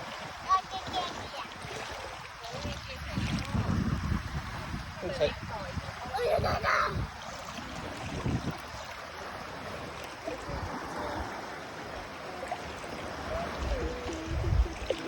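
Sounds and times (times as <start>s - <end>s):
sea water rushing: 0.0s - 15.0s
wind thumps on microphone: 2.5s - 7.2s, 7.9s - 8.7s, 13.3s - 15.0s.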